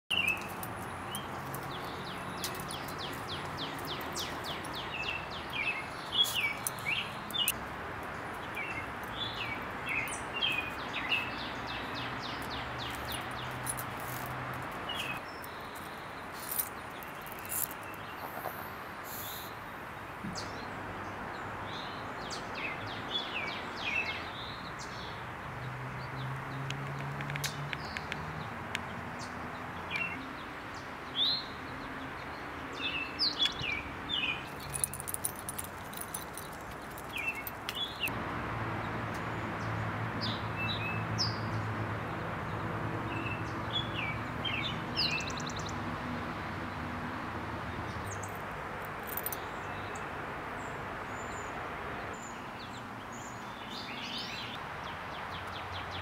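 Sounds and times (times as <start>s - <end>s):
small birds chirping: 0.1s - 20.8s, 21.4s - 38.1s.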